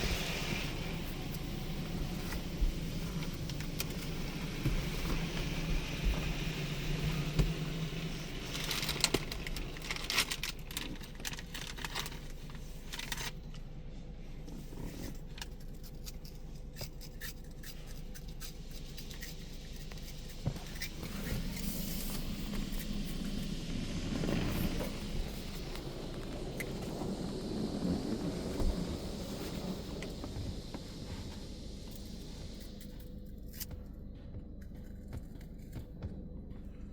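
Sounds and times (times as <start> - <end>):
spray pattering on car body: 18.6 - 32.8.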